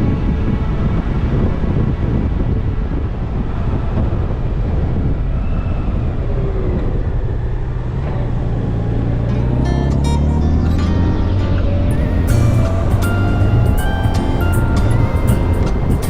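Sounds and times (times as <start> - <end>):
wind rushing over microphone: 0.0 - 16.0
motorcycle engine running: 11.7 - 16.0.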